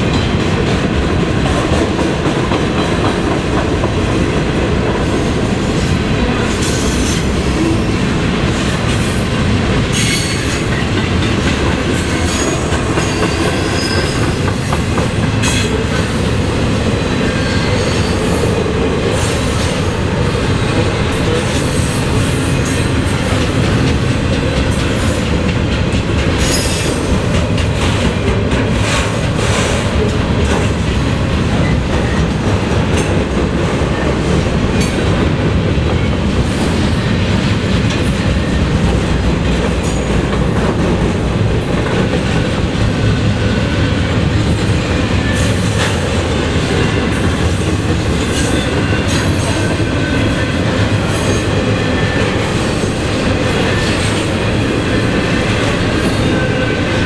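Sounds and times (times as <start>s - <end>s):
train wheels clicking over rails: 0.0s - 57.0s
train wheel squeals: 6.4s - 8.0s, 8.7s - 11.0s, 12.0s - 23.9s, 24.5s - 25.6s, 26.4s - 27.4s, 43.4s - 57.0s.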